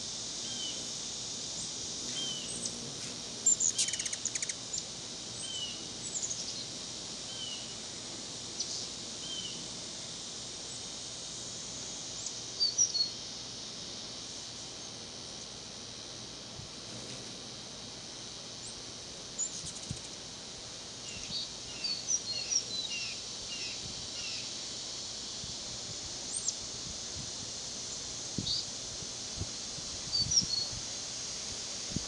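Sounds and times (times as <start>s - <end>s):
high background hiss: 0.0s - 32.0s
high bird chirps: 3.7s - 4.6s.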